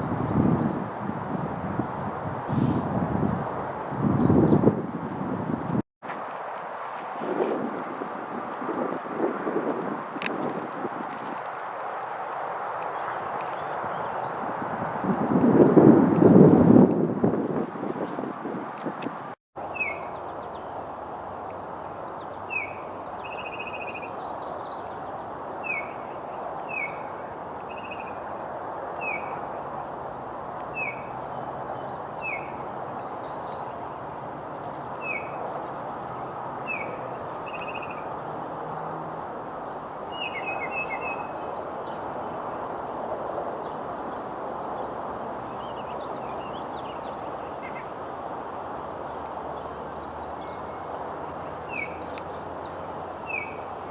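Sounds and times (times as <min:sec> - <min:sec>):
songbird chirping: 0:19.6 - 0:28.3, 0:30.7 - 0:34.0, 0:34.6 - 0:38.2, 0:39.7 - 0:48.0, 0:49.0 - 0:53.8.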